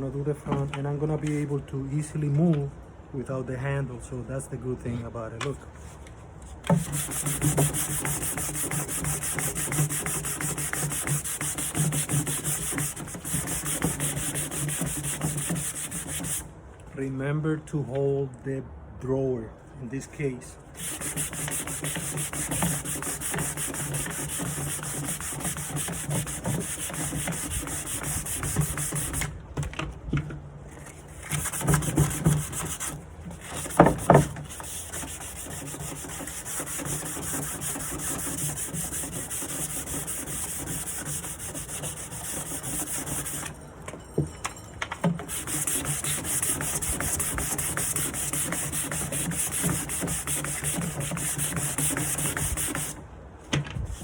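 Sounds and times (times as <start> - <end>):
sanding wood: 6.7 - 16.5, 20.8 - 29.3, 31.1 - 43.6, 45.1 - 53.0.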